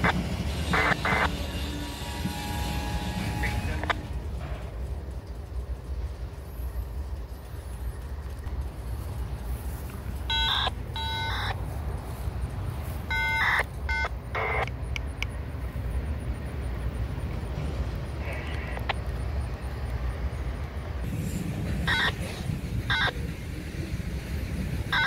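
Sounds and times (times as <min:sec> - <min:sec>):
freight train rumbling past: 0:00.0 - 0:25.0
short high beeping tones: 0:10.3 - 0:11.6, 0:13.0 - 0:14.6, 0:21.9 - 0:22.2
clicks: 0:13.1 - 0:15.4, 0:18.2 - 0:20.0.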